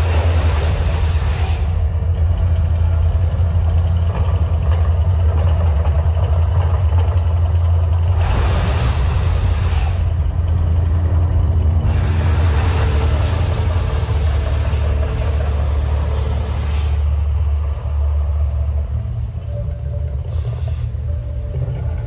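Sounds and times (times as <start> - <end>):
deep loud rumbling: 0.0 - 22.0
hissing rush: 8.2 - 17.2.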